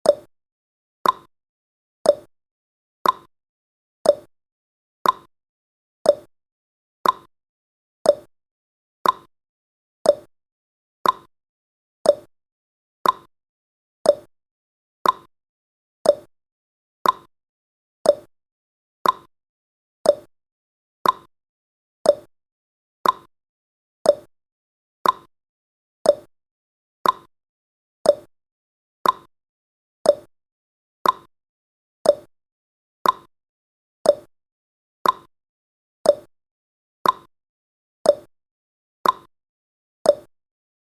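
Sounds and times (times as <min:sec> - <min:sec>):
clock tick-tock: 0:00.0 - 0:00.3, 0:01.0 - 0:01.3, 0:02.0 - 0:02.3, 0:03.0 - 0:03.3, 0:04.0 - 0:04.3, 0:05.0 - 0:05.3, 0:06.0 - 0:06.3, 0:07.0 - 0:07.3, 0:08.0 - 0:08.3, 0:09.0 - 0:09.3, 0:10.0 - 0:10.3, 0:11.0 - 0:11.3, 0:12.0 - 0:12.3, 0:13.0 - 0:13.3, 0:14.0 - 0:14.3, 0:15.0 - 0:15.3, 0:16.0 - 0:16.3, 0:17.0 - 0:17.3, 0:18.0 - 0:18.3, 0:19.0 - 0:19.3, 0:20.0 - 0:20.3, 0:21.0 - 0:21.3, 0:22.0 - 0:22.3, 0:23.0 - 0:23.3, 0:24.0 - 0:24.3, 0:25.0 - 0:25.3, 0:26.0 - 0:26.3, 0:27.0 - 0:27.3, 0:28.0 - 0:28.3, 0:29.0 - 0:29.3, 0:30.0 - 0:30.3, 0:31.0 - 0:31.3, 0:32.0 - 0:32.3, 0:33.0 - 0:33.3, 0:34.0 - 0:34.3, 0:35.0 - 0:35.3, 0:36.0 - 0:36.3, 0:37.0 - 0:37.3, 0:38.0 - 0:38.3, 0:39.0 - 0:39.3, 0:40.0 - 0:40.4.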